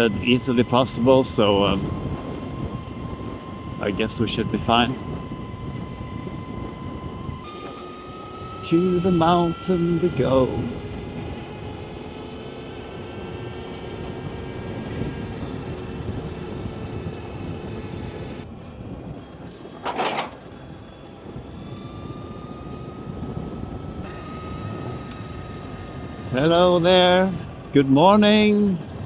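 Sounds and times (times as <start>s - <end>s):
electric motorcycle whine: 0.0s - 29.0s
wind and tyre noise: 0.0s - 29.0s.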